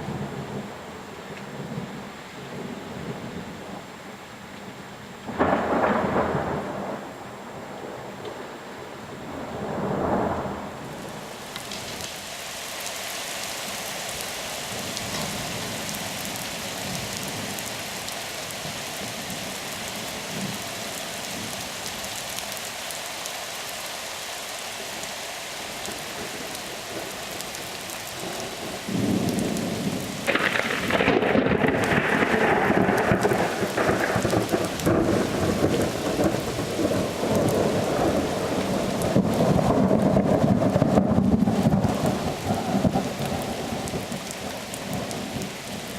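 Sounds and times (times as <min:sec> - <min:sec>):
steady rain falling: 0:00.0 - 0:45.9
thunder rumbling: 0:05.3 - 0:11.3, 0:25.8 - 0:45.9.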